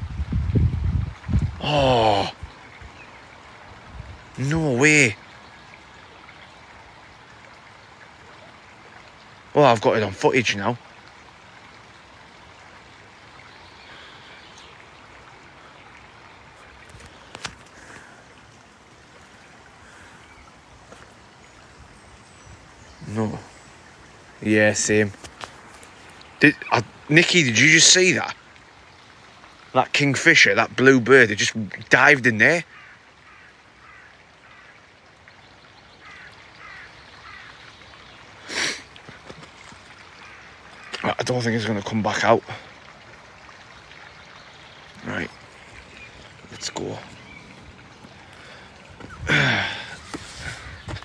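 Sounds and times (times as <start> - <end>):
outdoor hiss: 0.0 - 51.0
stream water rushing: 0.0 - 51.0
bird harsh calls: 32.7 - 34.8, 36.0 - 39.3, 44.9 - 51.0.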